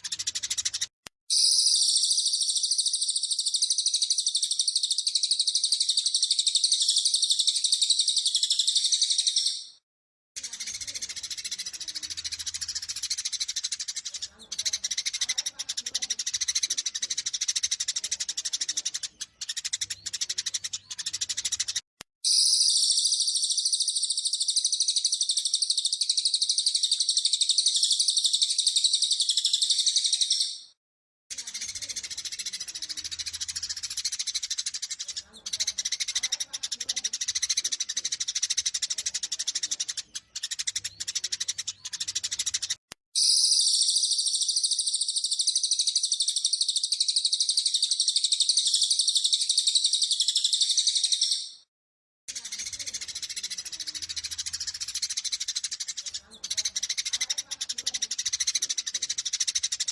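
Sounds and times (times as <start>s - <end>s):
sparrows chirping agitatedly: 0.0s - 9.8s, 10.4s - 51.7s, 52.3s - 59.9s.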